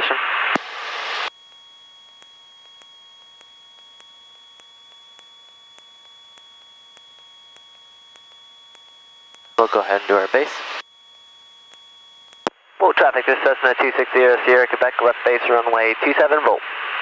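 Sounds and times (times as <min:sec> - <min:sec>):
radio squelch hiss: 0:00.0 - 0:10.8, 0:11.6 - 0:17.0
high-pitched intercom whine: 0:02.1 - 0:10.9, 0:11.5 - 0:16.6
faint ticks: 0:02.2 - 0:09.5.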